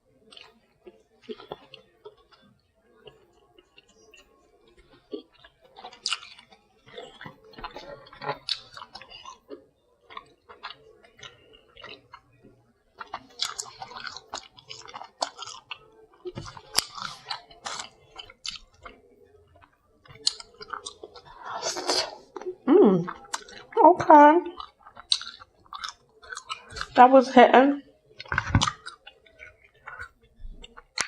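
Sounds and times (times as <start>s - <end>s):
person chewing and mouth smacking: 0.2s - 27.0s, 27.8s - 31.0s
crunchy bites: 5.0s - 9.5s, 13.0s - 19.0s, 20.1s - 22.2s, 24.5s - 27.0s, 28.2s - 31.0s.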